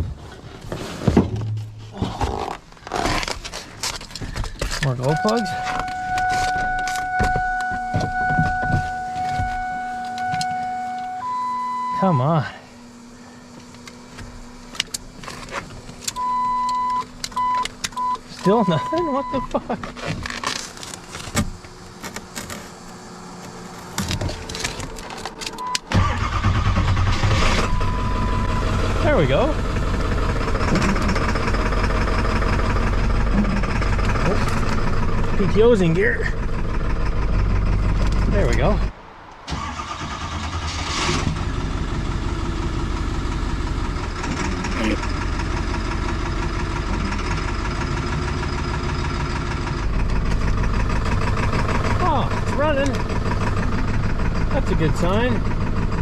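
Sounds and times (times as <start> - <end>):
diesel engine starting: 11.2 - 56.0.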